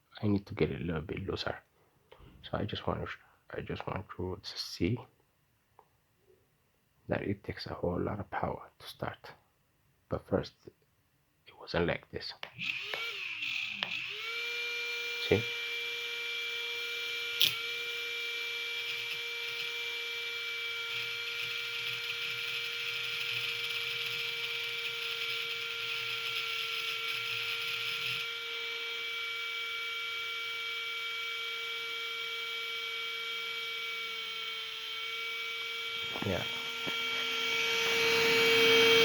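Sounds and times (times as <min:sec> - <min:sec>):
electric motor whine: 0:12.6 - 0:39.0
sharp click: 0:17.4 - 0:17.6.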